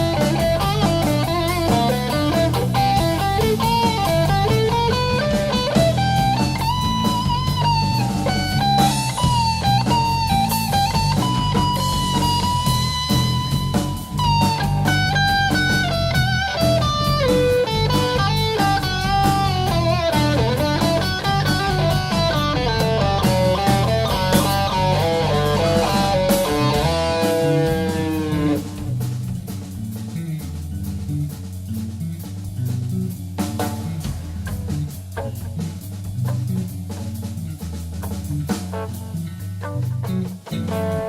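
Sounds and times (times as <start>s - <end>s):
electric guitar solo: 0.0s - 28.8s
bass and drums: 0.0s - 41.0s.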